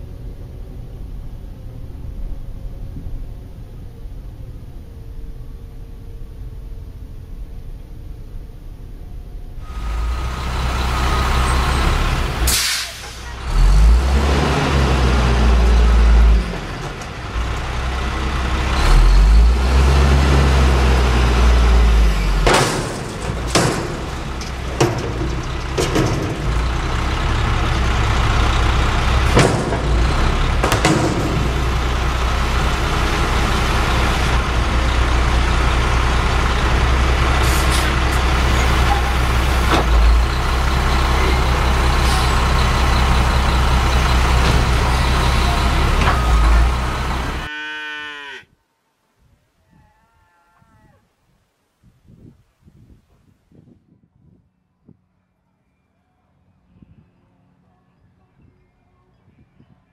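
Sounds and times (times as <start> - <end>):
garbage truck diesel engine revving: 9.6 - 47.5
metal bangs: 22.1 - 33.6.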